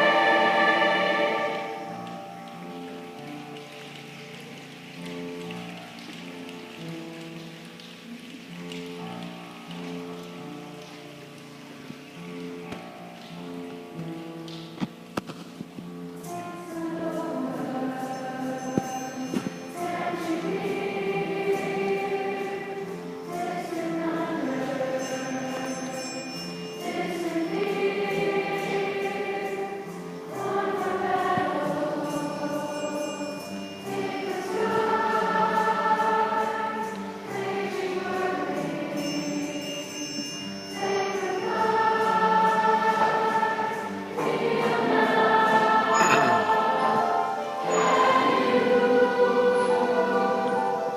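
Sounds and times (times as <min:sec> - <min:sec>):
young choir singing: 0:00.0 - 0:02.2, 0:16.2 - 0:26.2, 0:26.8 - 0:40.0, 0:40.7 - 0:50.9.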